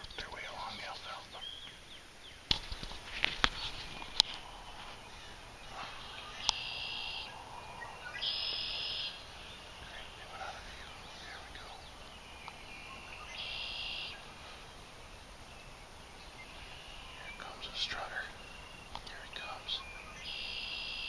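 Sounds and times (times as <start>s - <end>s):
distant turkeys gobbling: 2.6s - 18.9s.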